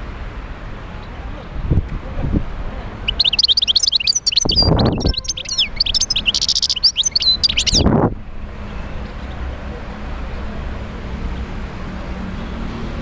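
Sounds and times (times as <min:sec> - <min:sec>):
goldfinch twittering song: 0:03.0 - 0:07.9.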